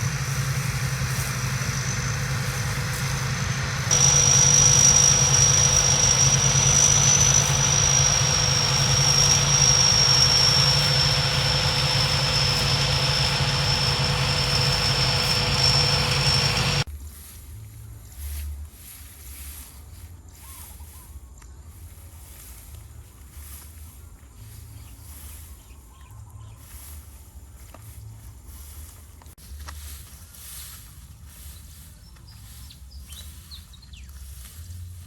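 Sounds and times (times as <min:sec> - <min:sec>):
combine harvester engine whining: 0:00.0 - 0:16.9.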